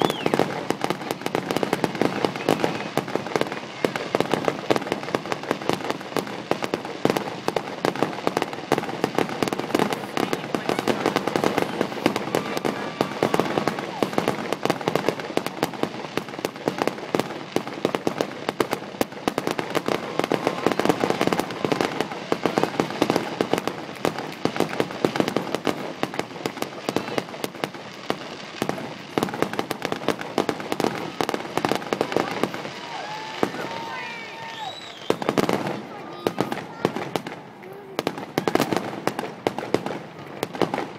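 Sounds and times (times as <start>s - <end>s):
fireworks banging: 0.0s - 40.9s.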